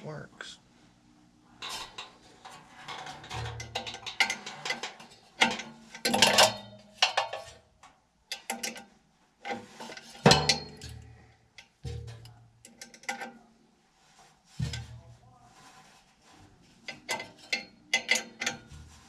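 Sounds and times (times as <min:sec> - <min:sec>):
metallic clanks of tools: 0:01.6 - 0:07.6, 0:08.3 - 0:13.5, 0:16.8 - 0:19.0.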